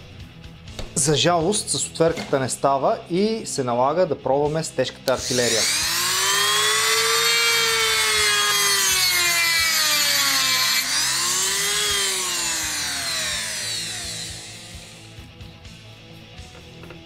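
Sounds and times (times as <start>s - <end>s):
electric power tool whining: 5.1s - 15.4s.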